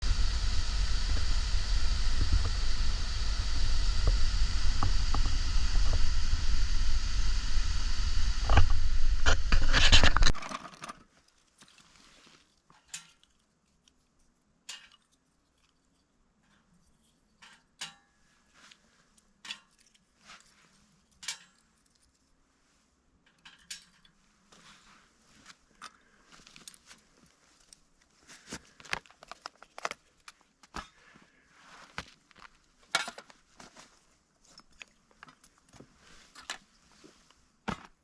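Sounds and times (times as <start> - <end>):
crunchy clicks: 0.0 - 10.8.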